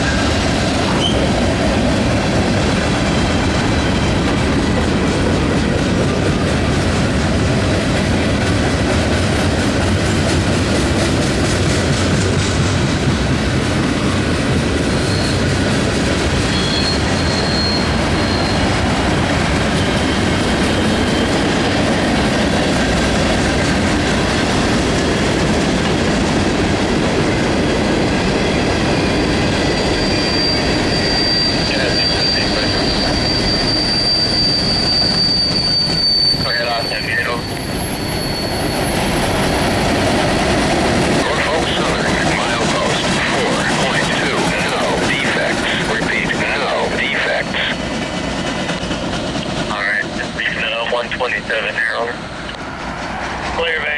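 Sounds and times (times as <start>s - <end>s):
train wheels rumbling on rails: 0.0s - 53.9s
high-pitched wheel squeal: 14.9s - 15.6s, 16.4s - 19.0s, 28.4s - 39.8s.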